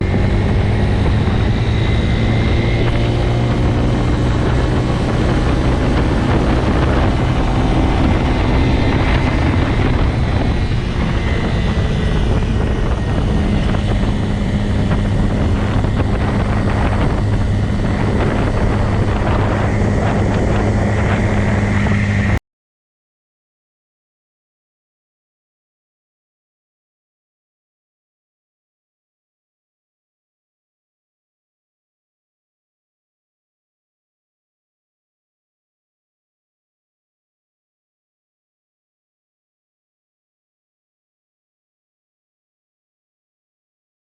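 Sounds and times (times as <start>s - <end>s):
motorcycle engine running: 0.0s - 22.4s
wind and road noise: 0.0s - 22.4s.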